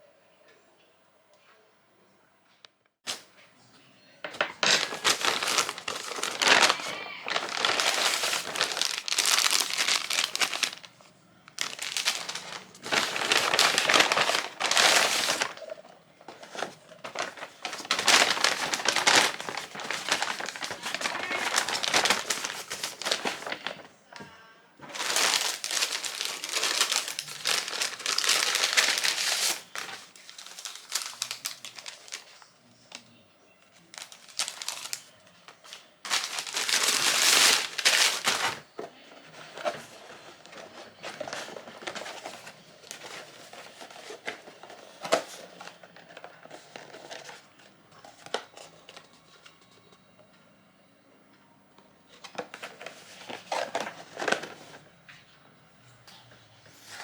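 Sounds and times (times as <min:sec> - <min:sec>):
packaging crinkling: 0:04.5 - 0:10.9, 0:11.5 - 0:23.9, 0:24.8 - 0:32.4, 0:33.9 - 0:35.2, 0:36.1 - 0:38.7.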